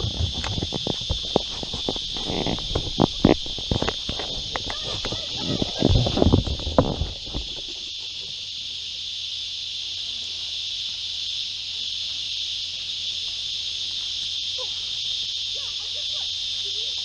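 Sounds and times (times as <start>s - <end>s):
knocks and thumps: 0.0s - 7.9s
insects buzzing: 0.0s - 17.0s.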